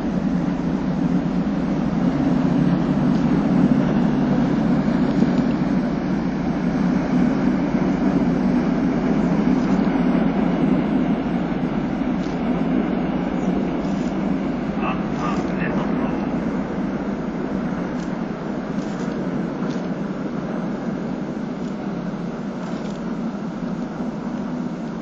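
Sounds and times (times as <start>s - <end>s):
ship engines rumbling: 0.0s - 25.0s.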